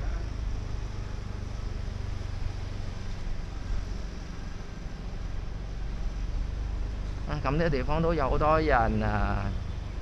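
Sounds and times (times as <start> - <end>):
passing vehicles rumbling: 0.0 - 10.0.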